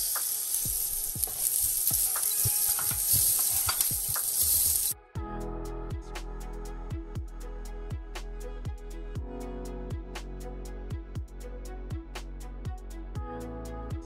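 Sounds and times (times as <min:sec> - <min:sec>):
spices sizzling in hot oil: 0:00.0 - 0:05.0.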